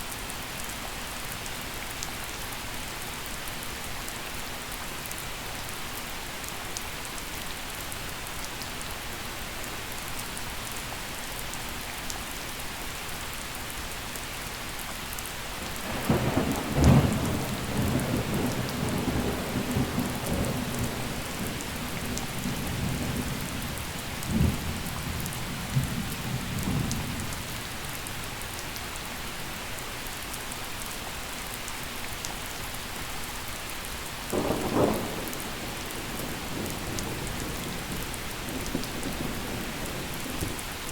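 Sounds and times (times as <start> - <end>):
gentle rain falling: 0.0 - 40.9
thunder cracking and rumbling: 15.6 - 27.3, 34.3 - 40.7.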